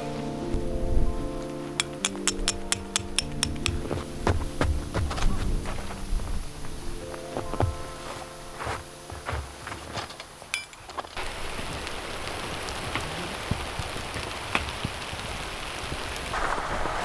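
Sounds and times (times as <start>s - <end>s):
wind-driven snow hitting tent: 11.2s - 17.0s.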